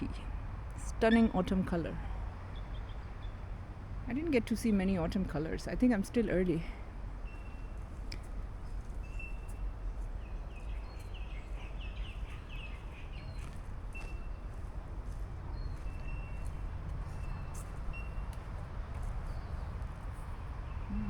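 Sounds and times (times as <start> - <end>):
bird chirps: 7.2 - 21.0
steady low rumble: 7.8 - 21.0.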